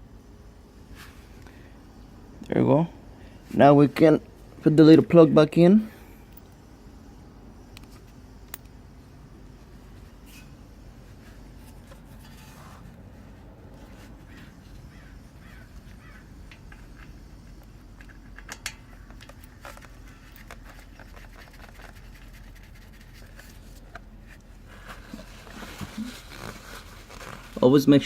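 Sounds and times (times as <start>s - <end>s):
faint handling noise: 7.7s - 28.0s.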